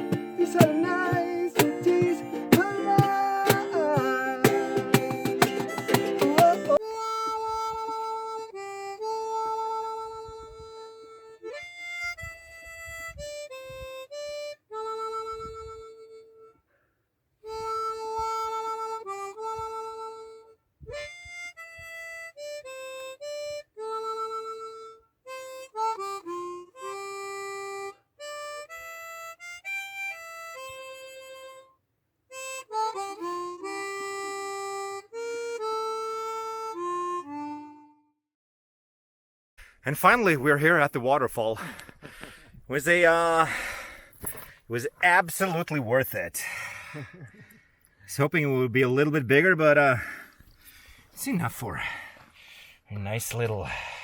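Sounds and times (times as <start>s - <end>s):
harmonica playing slow melody: 0.0s - 38.2s.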